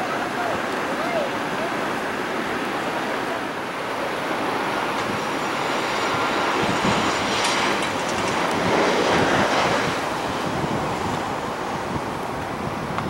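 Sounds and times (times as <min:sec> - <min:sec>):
jet engine roar: 0:00.0 - 0:13.0
wind on microphone: 0:03.7 - 0:13.0.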